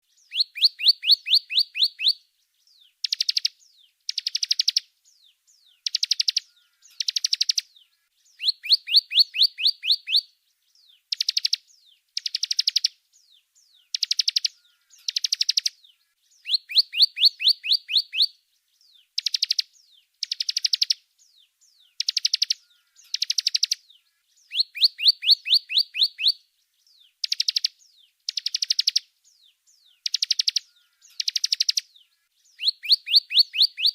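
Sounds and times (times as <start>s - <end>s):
songbird sharp high chirps: 0.0s - 33.9s.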